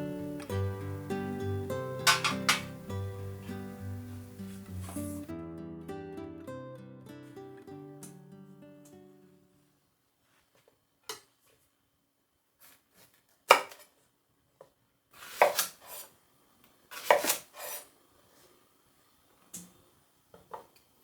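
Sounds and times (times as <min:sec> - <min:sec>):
dishes clattering: 0:02.0 - 0:02.9
dishes clinking: 0:02.0 - 0:03.0.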